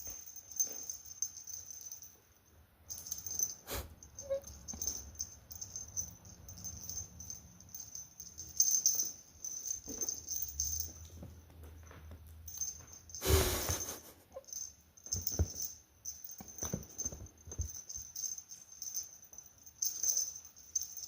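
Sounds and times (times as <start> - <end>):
cat toy rattling and scuffling: 15.0 - 21.0.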